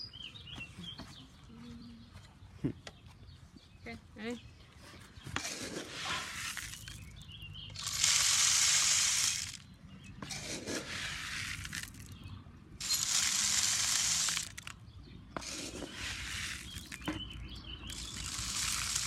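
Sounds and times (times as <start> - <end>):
birdseed pouring: 5.4 - 7.2, 7.8 - 9.7, 10.3 - 12.2, 12.8 - 14.8, 15.4 - 19.0.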